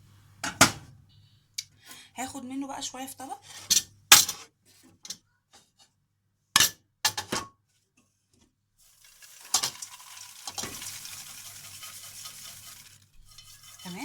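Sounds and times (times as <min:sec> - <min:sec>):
popcorn rustling as scooped: 0:08.8 - 0:14.0
kitchenware clinking: 0:09.0 - 0:14.0.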